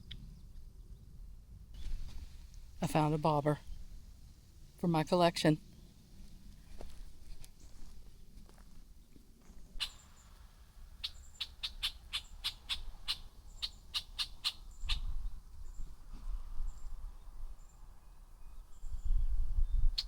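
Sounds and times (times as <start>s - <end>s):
bird calling sharp notes: 9.8s - 10.2s, 11.0s - 15.0s.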